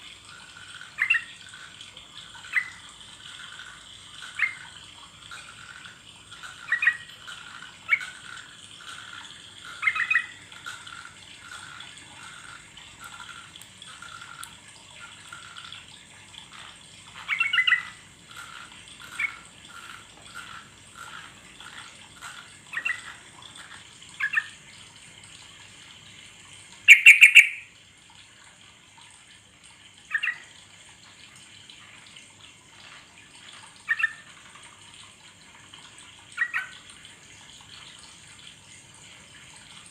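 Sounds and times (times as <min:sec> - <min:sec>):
bulbul calling: 0:01.0 - 0:01.4, 0:06.6 - 0:07.1, 0:09.7 - 0:10.4, 0:17.2 - 0:18.0, 0:22.7 - 0:23.1, 0:26.9 - 0:27.7.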